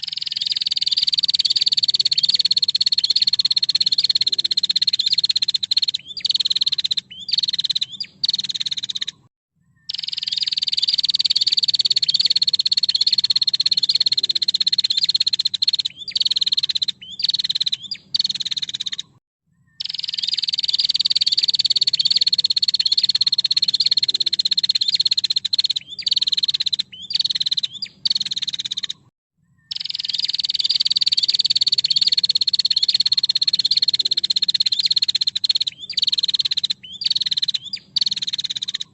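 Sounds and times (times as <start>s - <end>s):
bird rattling trill: 0.0s - 9.2s, 9.9s - 19.1s, 19.8s - 29.1s, 29.7s - 38.9s.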